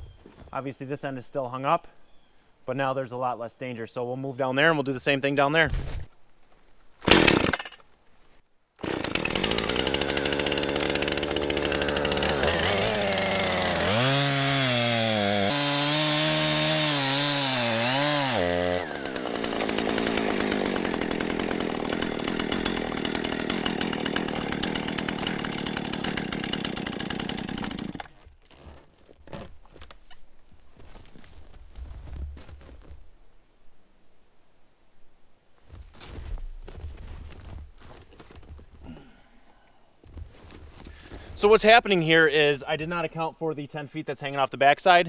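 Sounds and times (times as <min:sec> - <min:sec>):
chainsaw cutting wood: 0:07.0 - 0:07.8, 0:08.8 - 0:28.8.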